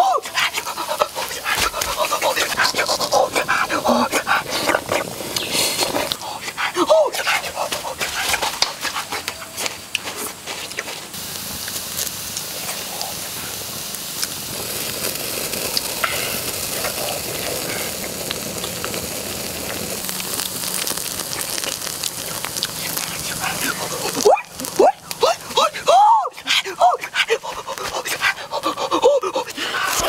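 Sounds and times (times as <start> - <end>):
prawns sizzling on hot stone: 0.0 - 30.0
small pops and crackles: 0.3 - 6.3, 7.2 - 13.3, 13.9 - 25.6.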